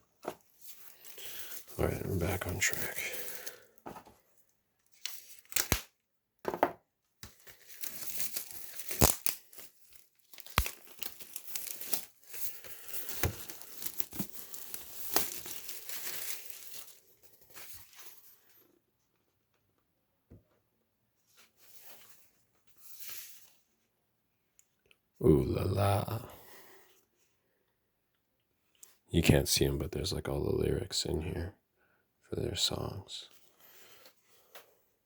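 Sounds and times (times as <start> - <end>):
wrapping being torn and crinkled: 0.5 - 3.8, 4.8 - 6.0, 7.2 - 18.4.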